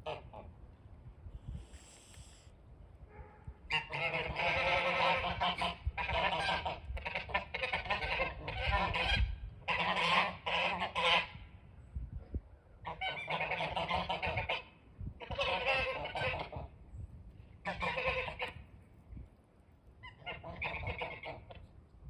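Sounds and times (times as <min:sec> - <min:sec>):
flock of geese honking: 0:03.7 - 0:11.4, 0:12.9 - 0:16.7, 0:17.6 - 0:18.6, 0:20.0 - 0:21.6.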